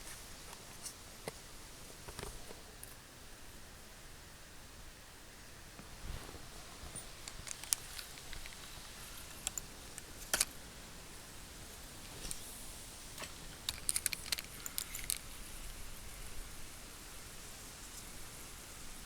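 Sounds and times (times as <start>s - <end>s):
steady hiss: 0.0s - 19.0s
metal lure parts clinking: 13.7s - 15.3s.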